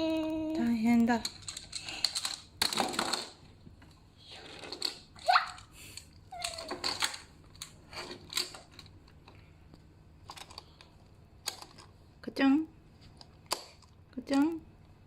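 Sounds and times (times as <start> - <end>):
plastic toy train clicks and rattles: 1.0 - 3.4, 4.3 - 8.9, 10.3 - 11.9.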